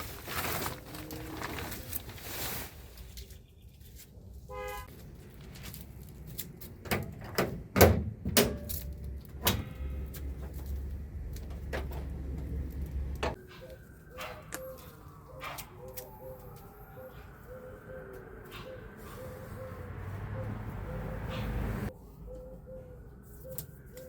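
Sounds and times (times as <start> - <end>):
engine idling rumble: 8.6 - 13.4.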